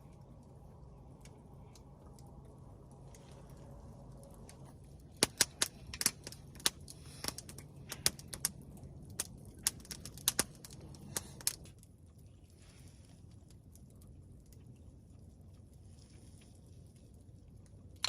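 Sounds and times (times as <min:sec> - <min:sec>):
campfire crackling pops: 0:00.0 - 0:11.9
low steady hum: 0:00.0 - 0:18.0.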